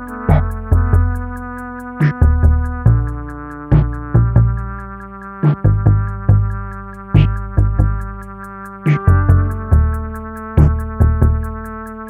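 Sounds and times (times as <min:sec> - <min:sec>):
synth chords: 0:00.0 - 0:12.0
drum machine beat: 0:00.1 - 0:01.3, 0:02.0 - 0:04.7, 0:05.4 - 0:06.6, 0:07.2 - 0:08.2, 0:08.9 - 0:11.7.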